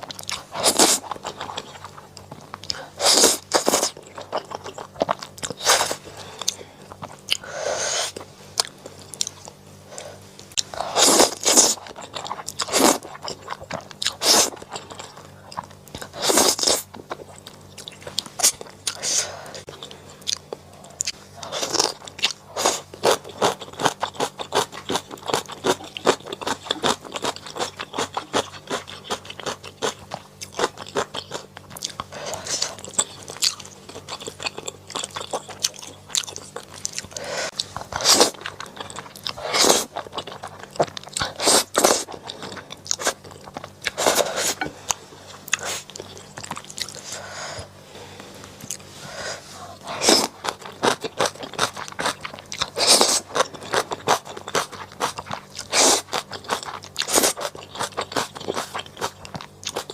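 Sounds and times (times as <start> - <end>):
mouth chewing with wet clicks: 19.6 - 21.2, 21.8 - 32.1, 32.7 - 44.0, 50.4 - 59.9.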